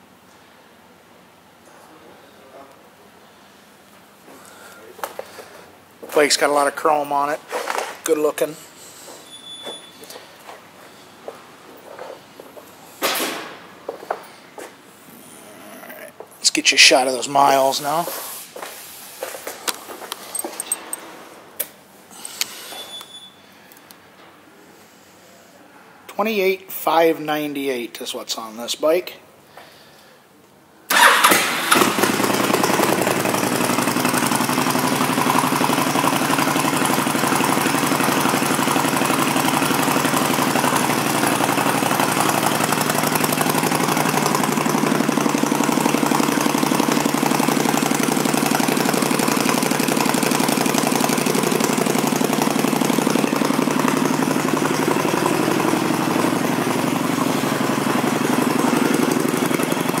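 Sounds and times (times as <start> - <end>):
motorcycle engine starting and idling: 30.9 - 60.0.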